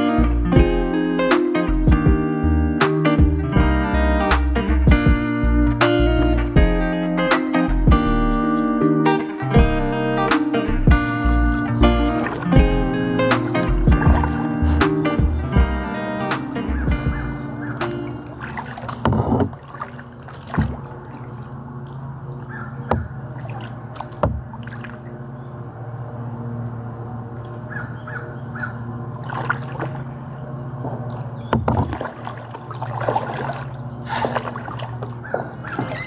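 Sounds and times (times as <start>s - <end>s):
bird cawing: 11.2s - 31.6s, 32.2s - 36.0s
paddle splashing water: 11.2s - 36.0s.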